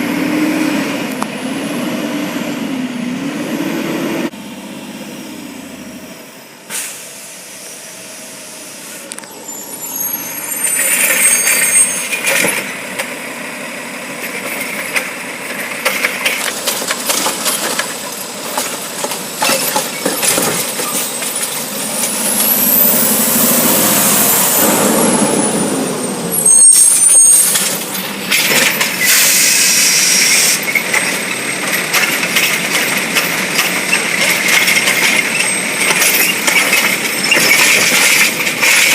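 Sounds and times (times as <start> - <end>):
air brake hisses: 6.7 - 7.9, 29.0 - 30.6
garbage truck engine revving: 10.0 - 38.9.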